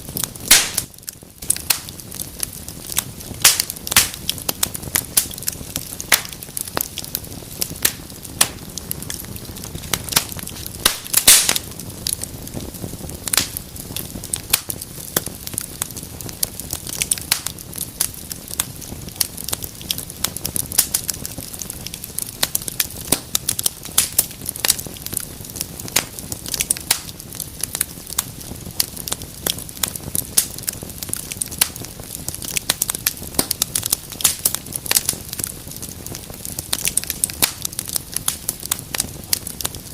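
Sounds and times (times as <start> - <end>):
low rush of flame: 0.0 - 39.9
wood fire crackling and popping: 0.0 - 39.9.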